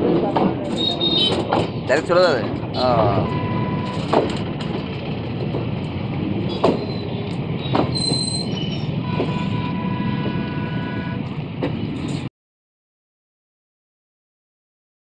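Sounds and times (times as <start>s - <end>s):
freight train rumbling past: 0.0s - 12.3s
high wheel squeal: 0.7s - 1.5s, 2.8s - 4.1s, 6.5s - 11.2s.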